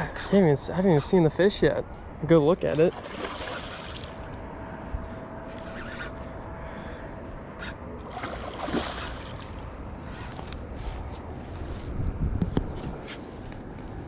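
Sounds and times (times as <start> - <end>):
light water sounds: 8.0 - 10.6.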